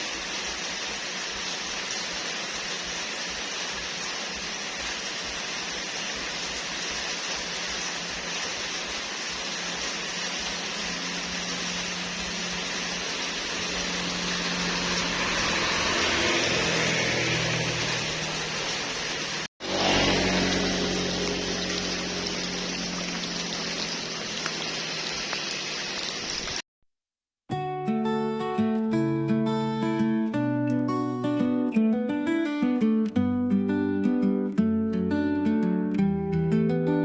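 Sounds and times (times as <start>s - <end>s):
steady rain: 0.0s - 26.6s.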